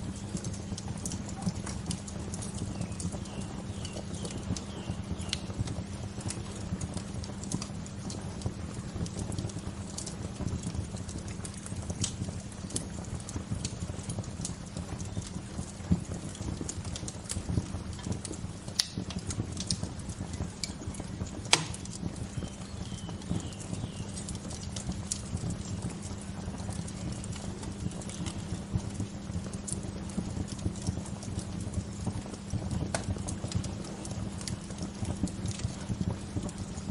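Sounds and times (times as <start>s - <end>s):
wood fire crackling: 0.0s - 36.9s
faint bird chirp: 2.7s - 5.4s, 22.2s - 24.3s.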